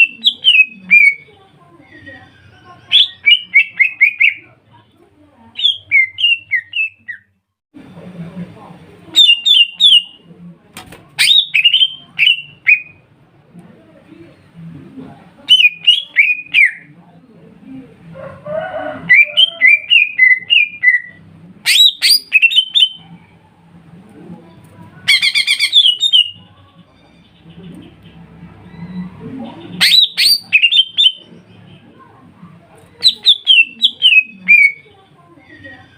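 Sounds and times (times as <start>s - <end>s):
bird trill: 25.1s - 27.5s, 28.6s - 31.6s, 33.0s - 34.9s.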